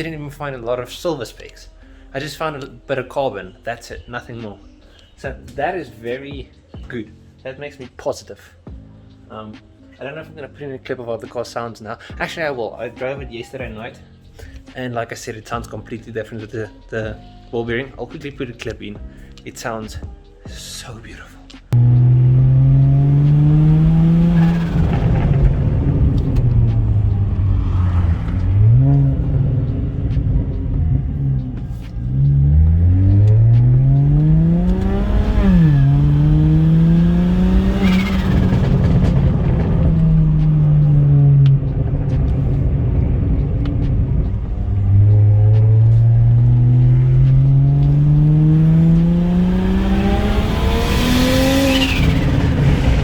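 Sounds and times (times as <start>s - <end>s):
car engine accelerating: 21.7s - 53.0s.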